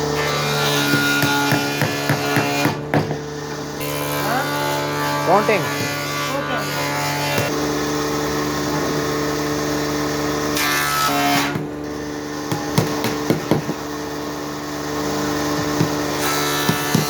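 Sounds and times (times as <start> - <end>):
power tool motor humming: 0.0 - 17.0
sharp knocks on wood: 0.9 - 3.2, 12.5 - 13.8, 15.5 - 16.0, 16.6 - 17.0.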